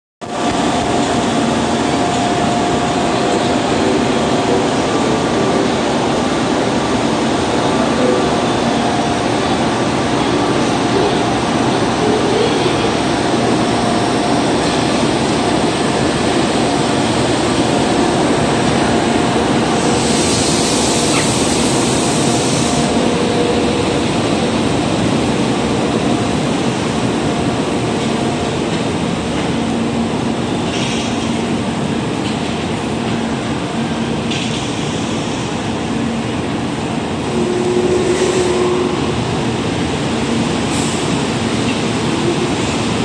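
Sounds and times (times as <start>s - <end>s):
train wheels rumbling on rail: 0.2s - 43.0s
hiss: 19.8s - 22.8s.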